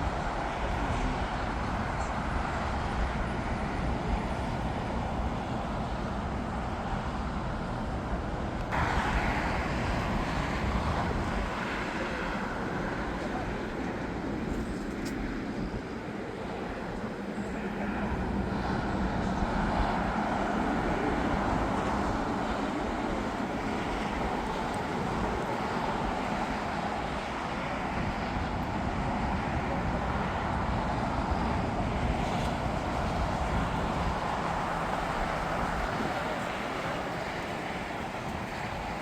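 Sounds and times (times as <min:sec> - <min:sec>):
jet engine rumble: 0:00.0 - 0:39.0.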